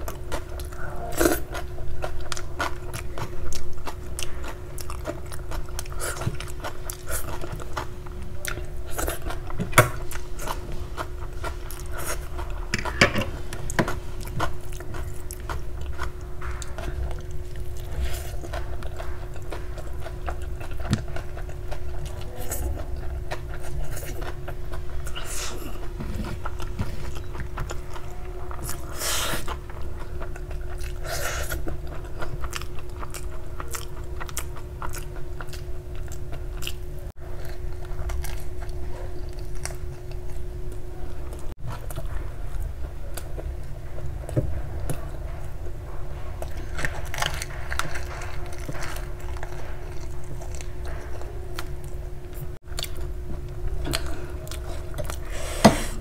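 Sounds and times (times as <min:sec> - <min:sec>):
chewing with wet mouth sounds: 0:00.0 - 0:56.0.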